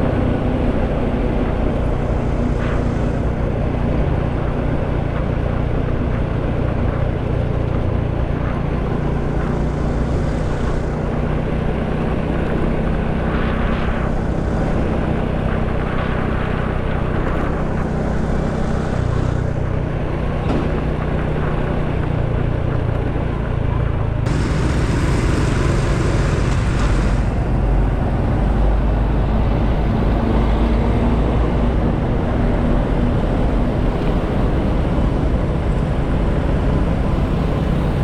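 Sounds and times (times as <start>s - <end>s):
motorcycle engine: 0.0s - 30.4s
wind rushing on microphone: 0.0s - 38.0s
loud hiss: 24.3s - 27.9s.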